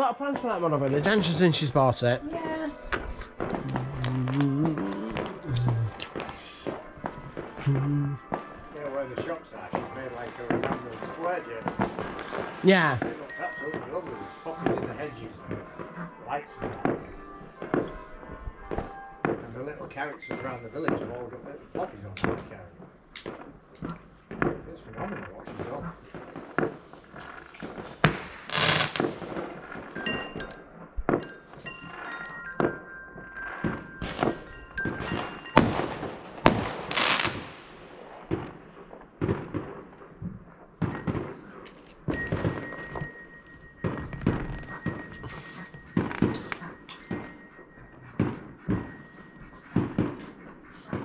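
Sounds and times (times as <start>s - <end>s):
high-pitched tone: 2.2s - 6.2s
fireworks bangs and pops: 2.9s - 51.0s.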